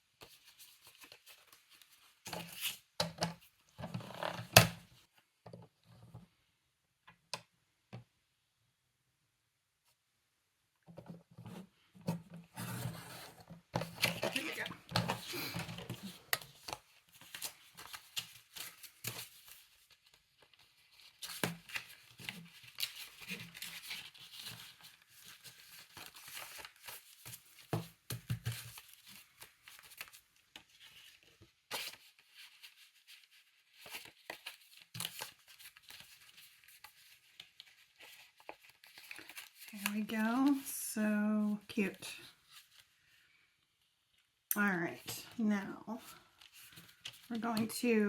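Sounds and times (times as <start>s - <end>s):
paper rustling and crinkling: 0.1s - 5.1s, 11.0s - 40.7s, 41.6s - 44.3s, 45.0s - 47.8s.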